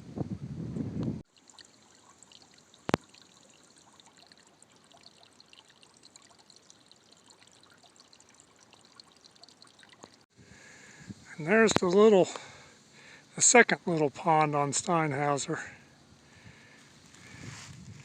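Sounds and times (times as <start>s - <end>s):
water trickling and dripping: 1.2s - 10.3s.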